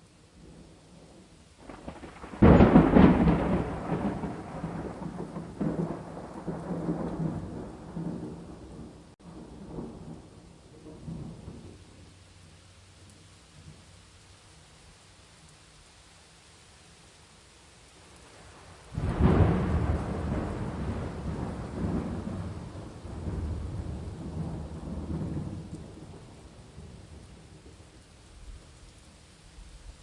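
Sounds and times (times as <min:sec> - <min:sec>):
steady rain: 0:00.0 - 0:30.0
rolling thunder: 0:00.4 - 0:12.0, 0:18.4 - 0:28.7.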